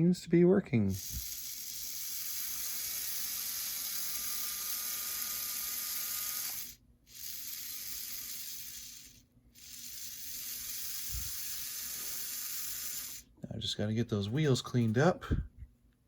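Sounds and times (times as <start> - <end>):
model locomotive motor whirring: 0.9 - 13.2.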